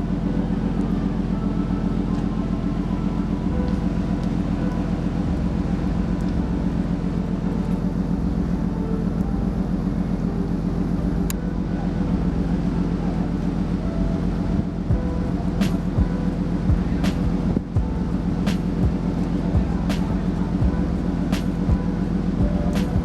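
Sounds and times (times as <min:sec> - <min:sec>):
ship engines droning: 0:00.0 - 0:23.0.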